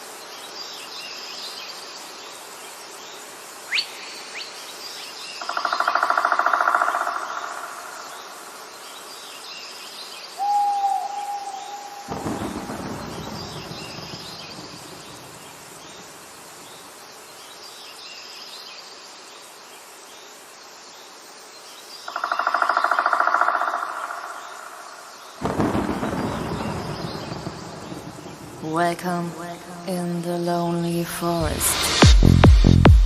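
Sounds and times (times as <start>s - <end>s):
hoot-like call: 10.4s - 12.6s
thunder rumble: 10.8s - 15.9s, 25.4s - 28.9s.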